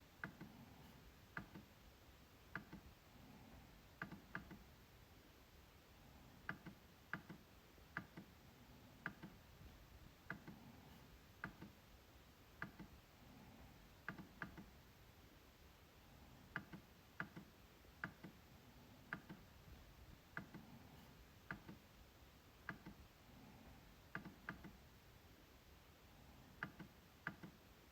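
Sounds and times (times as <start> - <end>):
trackpad clicks: 1.3 - 1.7, 2.5 - 2.9, 4.0 - 4.7, 6.4 - 8.3, 9.0 - 9.4, 12.6 - 12.9, 14.0 - 14.7, 16.5 - 18.4, 19.1 - 19.5, 21.4 - 21.8, 22.6 - 23.0, 24.1 - 24.8, 26.6 - 27.6.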